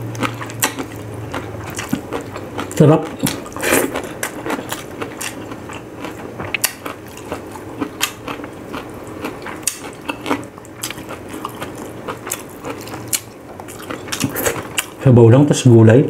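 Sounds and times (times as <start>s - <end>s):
man chewing: 0.0s - 15.0s.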